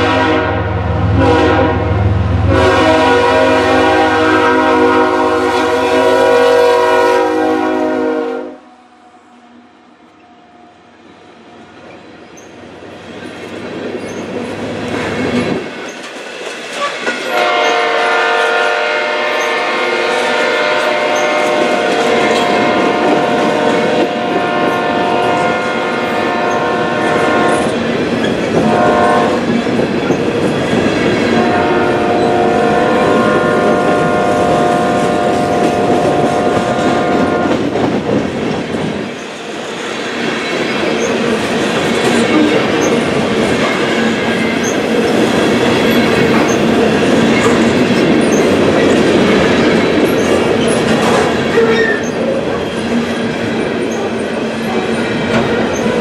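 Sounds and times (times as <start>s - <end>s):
locomotive air horn: 0.0s - 8.9s, 17.3s - 27.7s, 28.6s - 29.4s, 31.4s - 37.6s.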